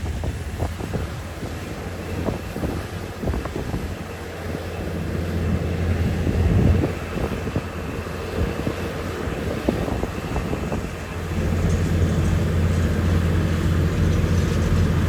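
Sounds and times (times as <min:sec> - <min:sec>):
diesel engine running: 0:00.0 - 0:15.0
metal clanks and knocks: 0:11.3 - 0:15.0.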